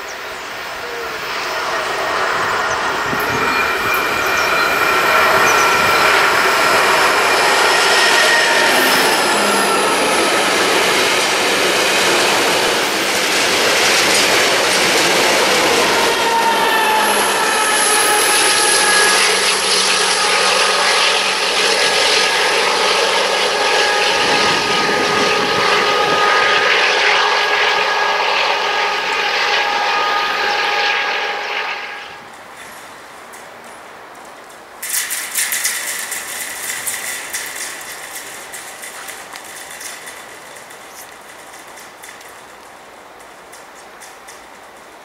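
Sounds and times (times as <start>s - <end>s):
train wheels rumbling and rattling: 0.0s - 45.0s
high sustained wheel squeal: 0.5s - 33.0s.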